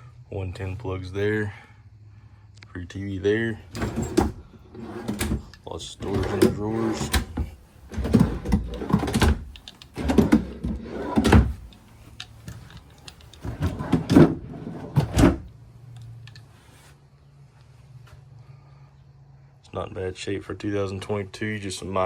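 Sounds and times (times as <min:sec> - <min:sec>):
faint low hum: 0:00.0 - 0:22.0
drawers rattling and thumping: 0:03.7 - 0:15.5.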